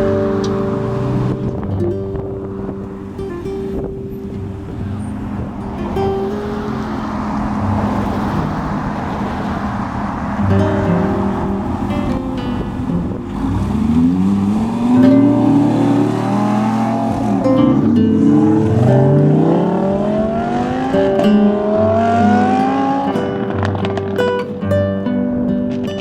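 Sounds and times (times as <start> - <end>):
car engine accelerating hard: 0.0 - 24.6
background music: 10.4 - 24.1.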